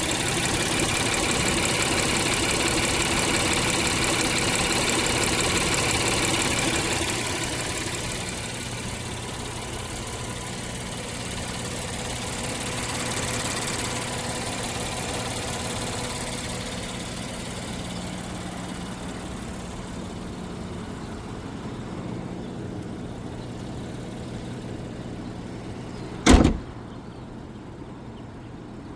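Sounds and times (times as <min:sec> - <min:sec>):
car engine idling: 0:00.0 - 0:27.6
loud thump: 0:26.2 - 0:26.8.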